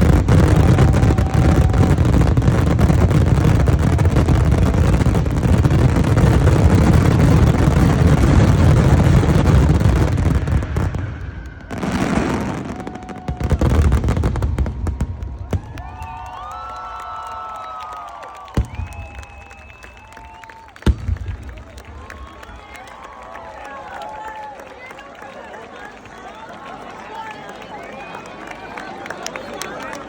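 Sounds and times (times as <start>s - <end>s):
fireworks bangs and crackling: 0.0s - 23.4s
crowd cheering and whistling: 0.0s - 30.0s.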